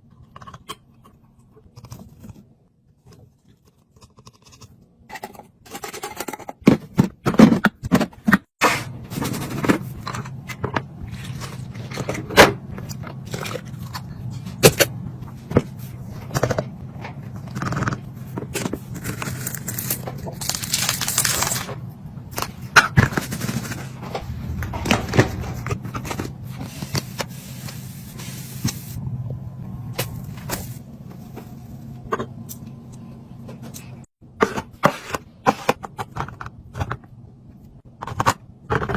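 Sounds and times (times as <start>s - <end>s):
fridge hum: 4.6s - 38.9s
packaging crinkling: 19.0s - 21.8s.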